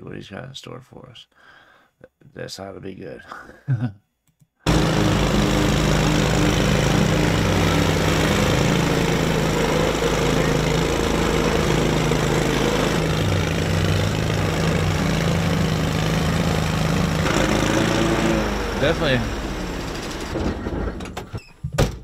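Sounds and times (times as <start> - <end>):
small car engine running: 4.7 - 21.1.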